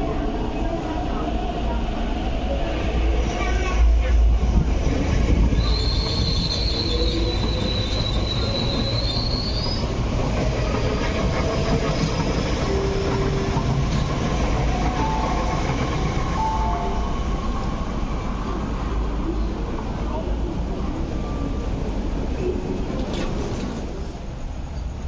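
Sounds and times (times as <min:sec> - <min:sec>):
train wheels rumbling on rail: 0:00.0 - 0:25.0
wheels squealing: 0:05.6 - 0:10.0.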